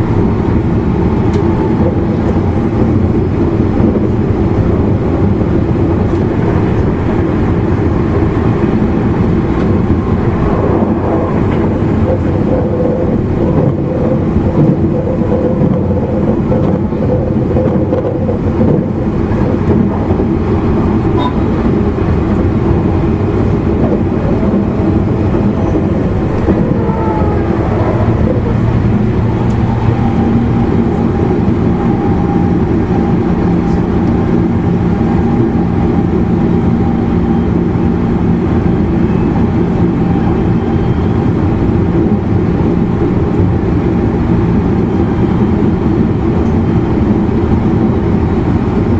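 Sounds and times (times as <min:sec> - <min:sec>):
train wheels rumbling on rails: 0:00.0 - 0:48.9
traction motor hum: 0:09.9 - 0:20.3, 0:23.7 - 0:31.2.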